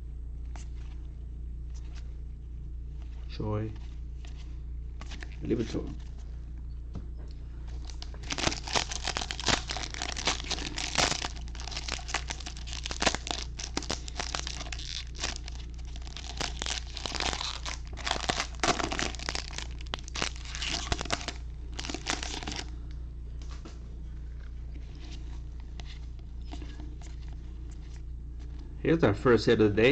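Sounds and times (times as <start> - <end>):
foil wrappers torn and crinkled: 7.8 - 22.8.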